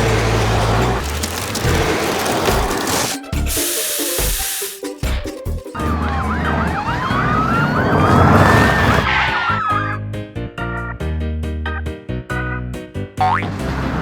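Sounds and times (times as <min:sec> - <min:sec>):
burst of hiss: 0:03.1 - 0:05.0
wailing siren: 0:05.8 - 0:10.0
yelping siren: 0:05.8 - 0:10.0.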